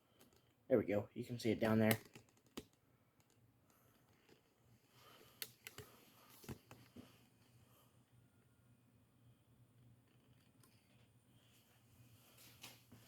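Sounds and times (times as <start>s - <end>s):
faint low hum: 2.7s - 13.0s.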